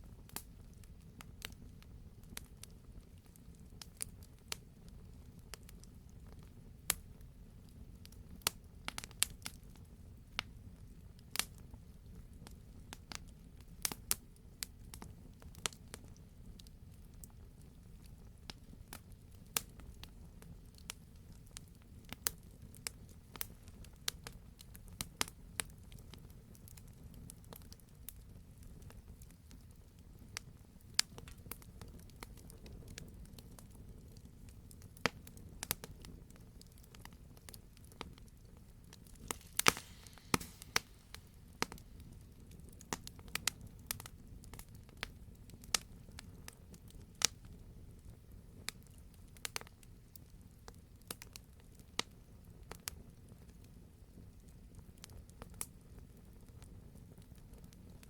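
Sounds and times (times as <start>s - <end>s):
low rumble of flame: 0.0s - 58.0s
wood fire crackling: 0.0s - 58.0s
sharp pops: 39.0s - 41.9s.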